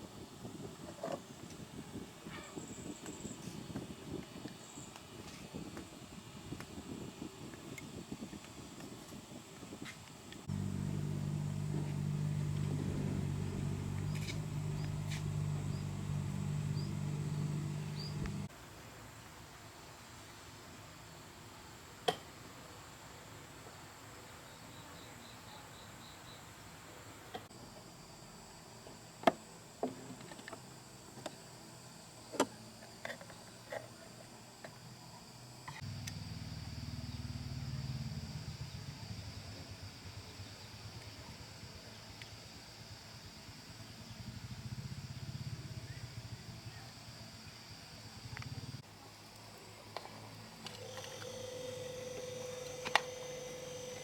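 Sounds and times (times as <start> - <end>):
insects droning: 10.4 - 18.5, 27.6 - 54.0
machine humming: 10.5 - 18.5.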